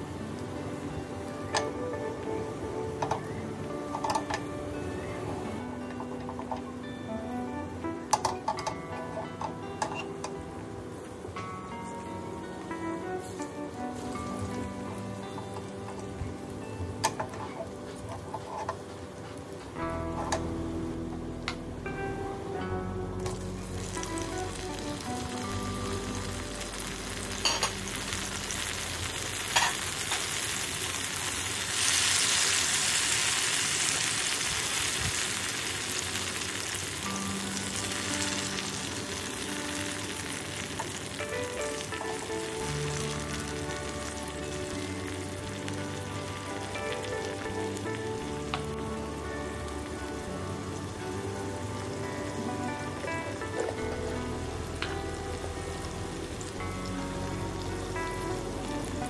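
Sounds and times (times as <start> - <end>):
tomatoes sizzling in oil: 0.0 - 59.0
spatula stirring in pan: 17.2 - 19.5.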